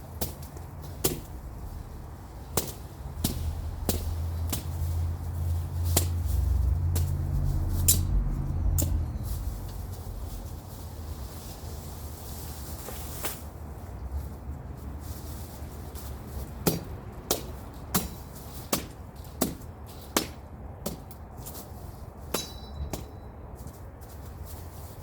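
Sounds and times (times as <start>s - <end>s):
machete chopping brush: 0.1s - 1.5s, 2.5s - 8.2s, 8.8s - 9.0s, 12.8s - 13.6s, 16.0s - 23.1s
short metallic ring: 22.4s - 23.3s.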